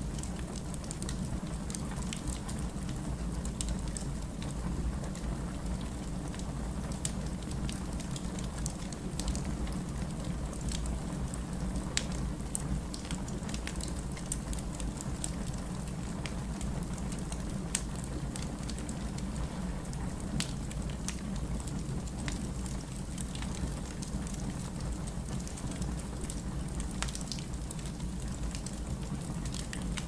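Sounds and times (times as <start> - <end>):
burning logs crackling and popping: 0.0 - 30.0
fire flame rumble: 0.0 - 30.0.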